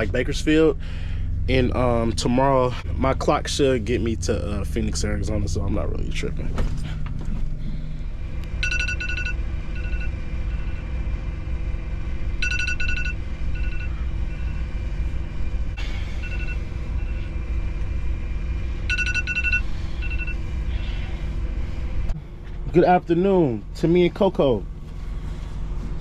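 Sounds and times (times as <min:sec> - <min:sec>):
truck engine rumbling: 0:00.0 - 0:26.0
electronic beeps: 0:08.6 - 0:10.9, 0:12.4 - 0:14.7, 0:16.2 - 0:17.3, 0:18.9 - 0:20.4.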